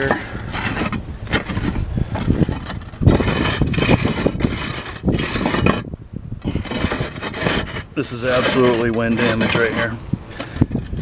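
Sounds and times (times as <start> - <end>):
footsteps on tile roof: 0.0 - 5.8
loose roof tiles clacking: 0.0 - 11.0
wind rumbling on microphone: 0.0 - 11.0.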